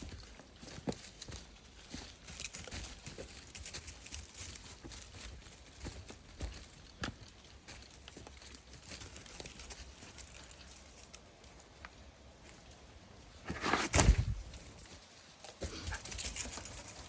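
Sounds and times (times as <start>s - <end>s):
footsteps on woodland trail: 0.0s - 17.0s
rustling thump: 13.5s - 14.6s.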